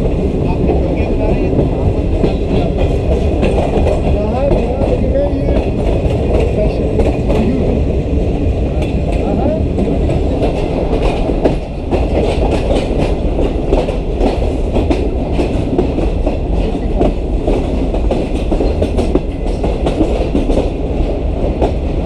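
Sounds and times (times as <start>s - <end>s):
train rumbling: 0.0s - 22.0s
wheels clattering over rail joints: 10.0s - 20.8s.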